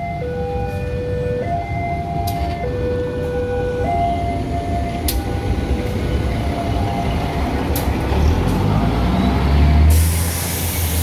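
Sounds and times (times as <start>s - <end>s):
train wheels rumbling on rails: 2.0s - 11.0s
loud hiss of rushing air: 9.8s - 11.0s.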